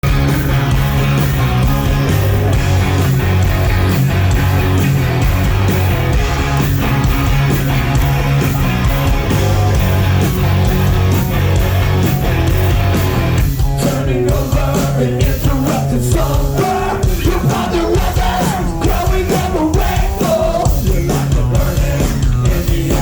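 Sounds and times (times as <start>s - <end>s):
bass guitar: 0.0s - 23.0s
distorted electric guitars: 0.0s - 23.0s
drums fast beat: 0.0s - 23.0s.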